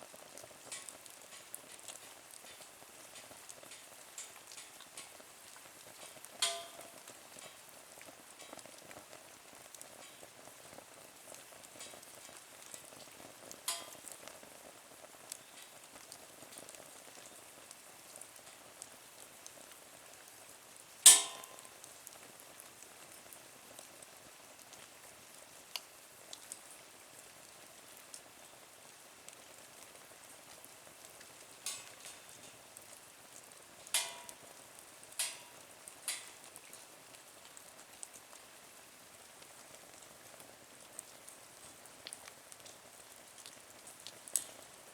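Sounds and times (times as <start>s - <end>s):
wood fire crackling: 0.0s - 44.9s
fire sharp pops: 6.0s - 7.6s, 11.7s - 14.3s, 21.1s - 21.9s, 31.6s - 32.6s, 33.8s - 36.7s.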